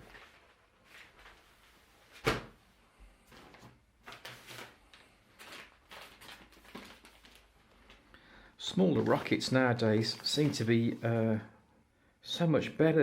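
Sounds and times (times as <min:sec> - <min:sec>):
cardboard rustling and scraping: 0:09.0 - 0:11.2.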